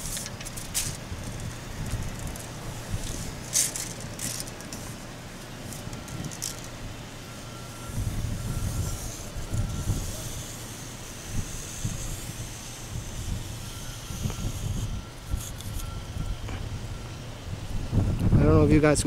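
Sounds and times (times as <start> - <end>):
wind rumble on microphone: 0.0 - 3.5, 5.8 - 7.0, 7.7 - 19.0
tape measure rattling and clicking: 0.0 - 4.9, 5.7 - 6.8.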